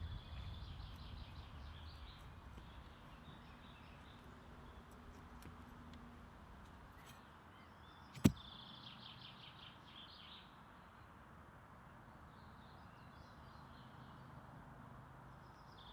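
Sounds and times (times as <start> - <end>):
small birds chirping: 0.0 - 10.4
sharp click: 8.1 - 8.4.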